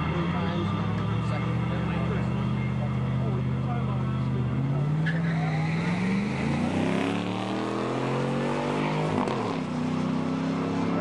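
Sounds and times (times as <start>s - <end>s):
engine accelerating hard: 0.0s - 11.0s.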